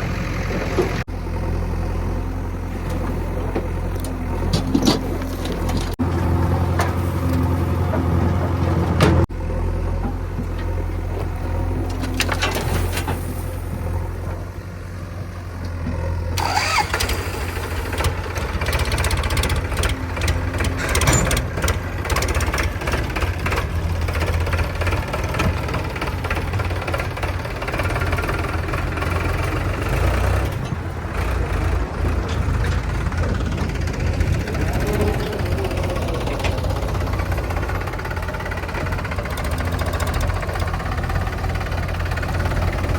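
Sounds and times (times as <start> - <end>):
diesel engine of heavy machinery: 0.0 - 42.9
knocks and clatter: 2.9 - 9.3, 18.0 - 34.6.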